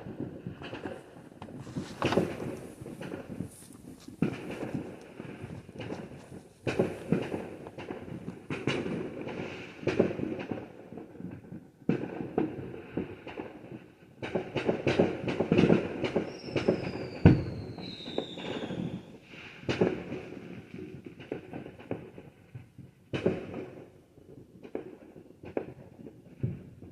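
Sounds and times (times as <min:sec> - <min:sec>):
heavy firework boom: 0:00.0 - 0:10.2
fireworks bangs and crackling: 0:00.0 - 0:26.9
falling whistle: 0:16.4 - 0:19.0.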